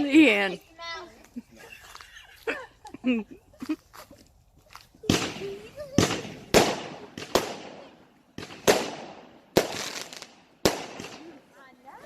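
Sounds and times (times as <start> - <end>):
fireworks booming: 5.0 - 11.4.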